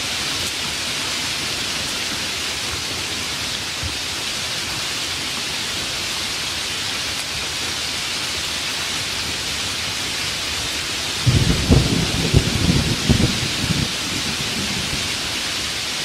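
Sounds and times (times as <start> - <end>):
heavy rain falling: 0.0 - 16.0
crackling thunder rumble: 11.2 - 15.9.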